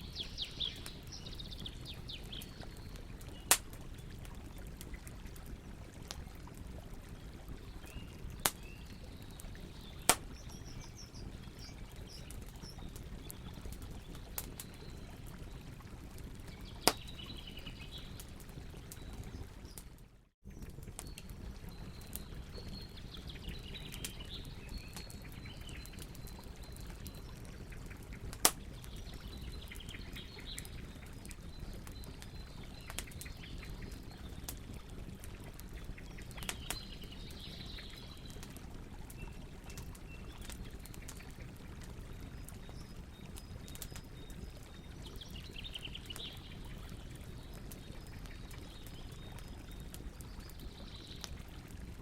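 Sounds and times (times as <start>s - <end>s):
birds chirping: 0.0s - 5.0s
flowing water: 0.0s - 19.9s, 20.5s - 52.0s
campfire crackling and popping: 0.0s - 52.0s.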